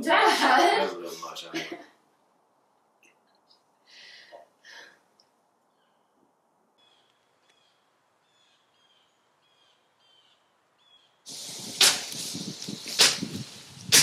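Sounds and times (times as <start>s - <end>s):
faint high bird chirps: 6.8s - 11.2s.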